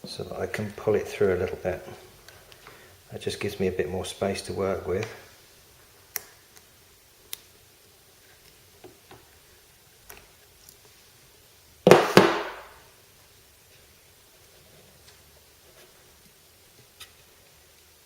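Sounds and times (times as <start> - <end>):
loud knocks: 11.9 - 12.7.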